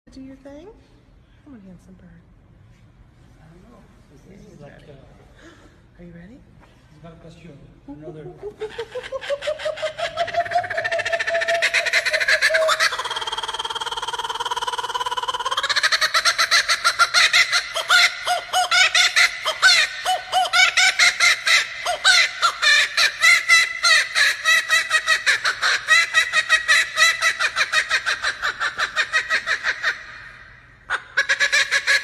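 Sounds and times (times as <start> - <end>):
bird calling in rapid notes: 8.6 - 32.0.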